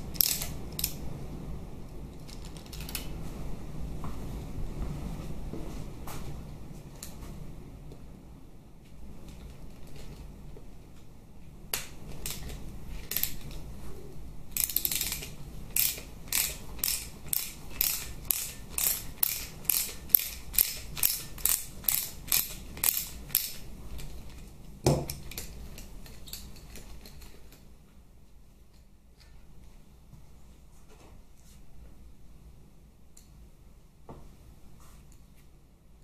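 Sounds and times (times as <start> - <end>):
ratchet wrench clicking: 0.1 - 1.0, 14.6 - 23.6.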